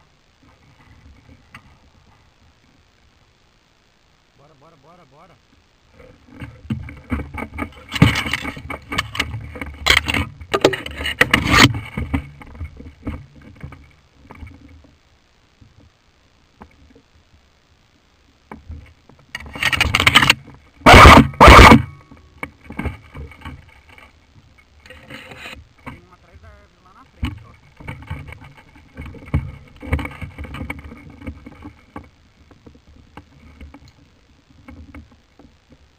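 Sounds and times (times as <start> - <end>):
rustling against microphone: 5.8 - 15.0, 18.4 - 35.9.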